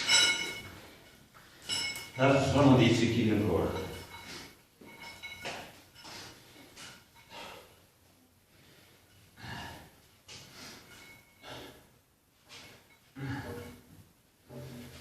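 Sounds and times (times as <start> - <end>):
man breathing hard: 6.0 - 13.9.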